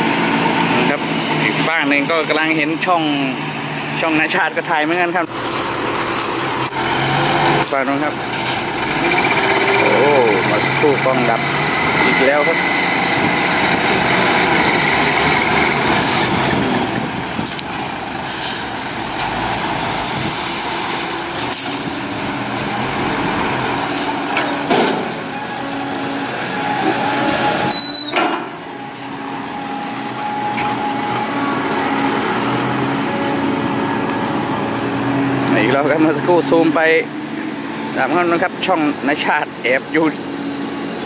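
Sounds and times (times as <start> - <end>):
diesel engines running: 0.0 - 41.0
air brake hisses: 18.2 - 19.0.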